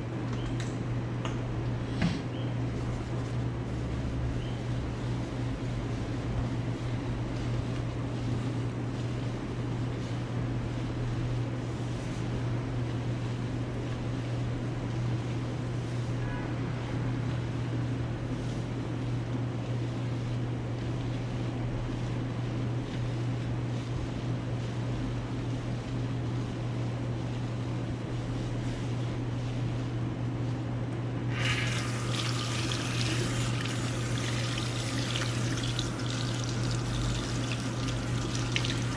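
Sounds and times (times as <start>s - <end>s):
steady low hum: 0.0s - 38.9s
water running from a tap: 31.3s - 38.9s.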